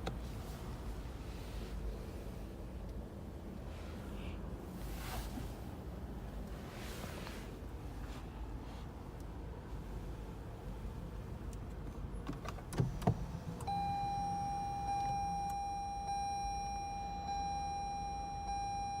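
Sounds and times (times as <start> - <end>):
car electronic buzzer tone: 13.7 - 19.0.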